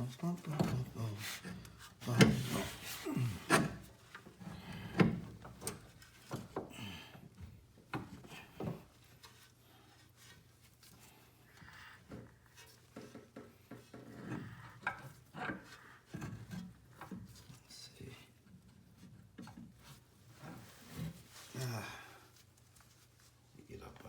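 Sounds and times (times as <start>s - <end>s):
tools knocking and scraping: 12.1s - 17.5s.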